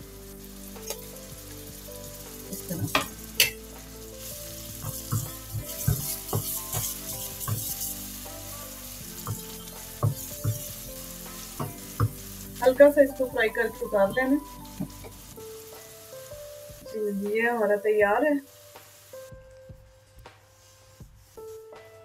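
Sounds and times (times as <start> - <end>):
food sizzling in frying pan: 0.0 - 22.0
spatula knocking against pan: 4.8 - 7.7, 9.3 - 10.8.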